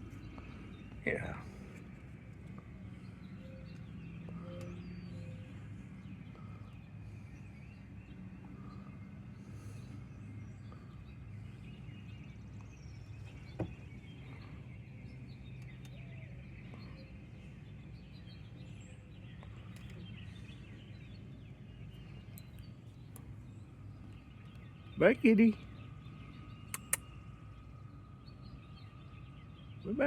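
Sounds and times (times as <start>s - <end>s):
faint bird chirps: 0.0s - 30.0s
sharp click: 26.7s - 27.1s.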